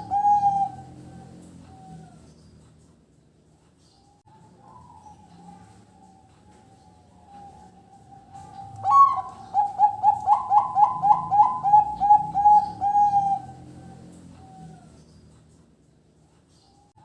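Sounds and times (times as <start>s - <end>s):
dove cooing: 0.0s - 2.4s, 4.3s - 15.2s.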